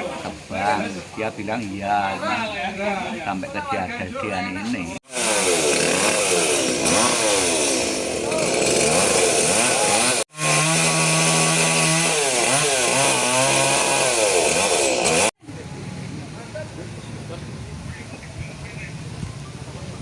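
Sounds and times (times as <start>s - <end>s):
chainsaw revving: 5.0s - 15.4s.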